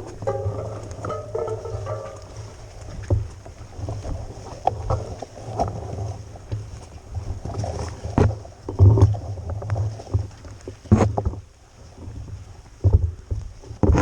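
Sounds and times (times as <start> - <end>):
bike knocks and rattles: 0.0 - 3.3.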